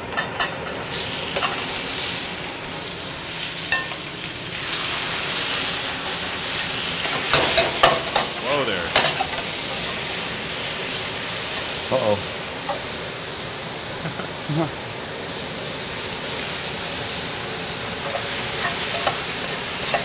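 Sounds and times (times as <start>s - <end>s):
tongs clattering against a wok: 0.1s - 1.6s, 3.7s - 4.0s, 7.0s - 9.8s, 18.0s - 20.0s
scallops sizzling in a wok: 0.1s - 20.0s.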